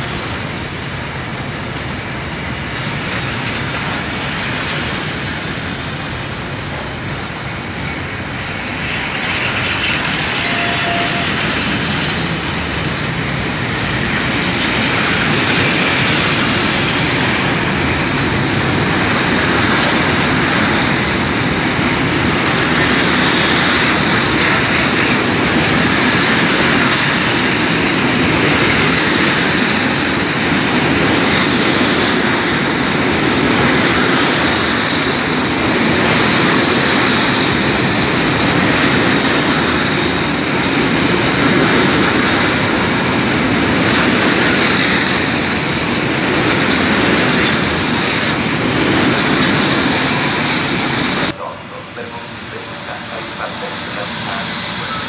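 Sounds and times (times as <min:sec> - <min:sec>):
wagon wheels on track: 0:07.6 - 0:21.2.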